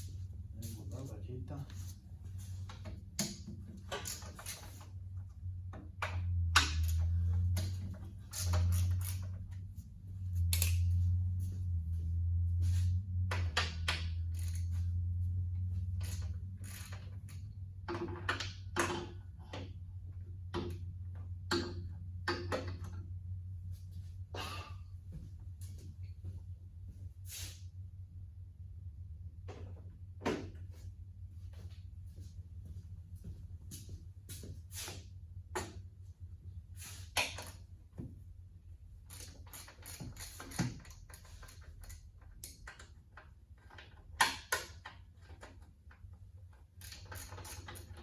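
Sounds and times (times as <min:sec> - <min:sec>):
steady low hum: 0:00.0 - 0:48.0
ratchet clicking on metal: 0:06.6 - 0:09.4, 0:10.5 - 0:10.9, 0:13.6 - 0:14.8, 0:15.9 - 0:17.5, 0:39.1 - 0:43.0, 0:46.8 - 0:48.0.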